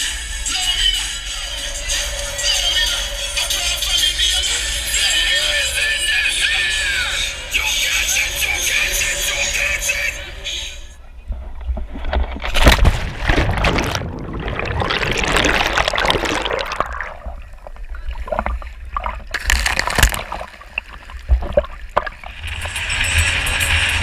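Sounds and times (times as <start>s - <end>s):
steady low rumble: 0.0s - 24.0s
water splashing and sloshing: 11.2s - 24.0s.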